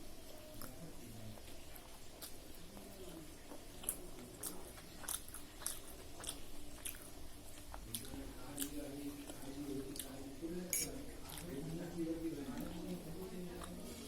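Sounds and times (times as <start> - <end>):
person chewing food: 1.4 - 10.2.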